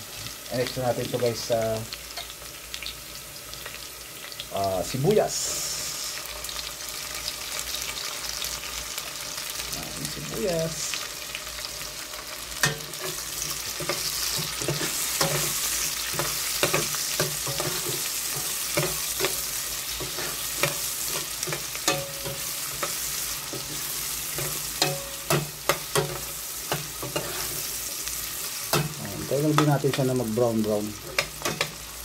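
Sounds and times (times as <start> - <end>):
vegetables sizzling in hot oil: 0.0 - 32.0
spatula scraping against pot: 12.6 - 29.0.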